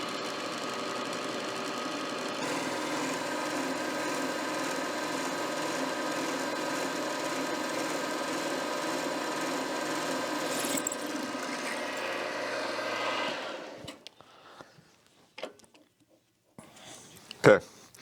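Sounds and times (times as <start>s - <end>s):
milling machine motor humming: 0.0s - 14.1s.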